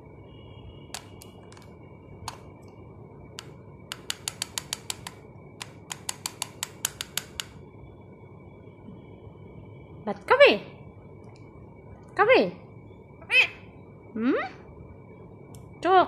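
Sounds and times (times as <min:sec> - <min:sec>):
parakeet clicking: 0:01.0 - 0:07.6.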